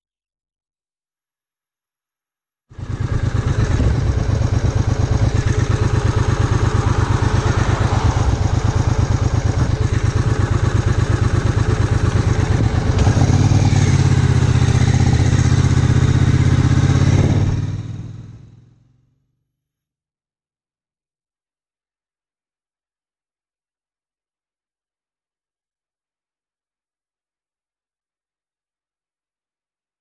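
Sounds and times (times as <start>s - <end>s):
motorcycle engine running: 2.7s - 19.1s.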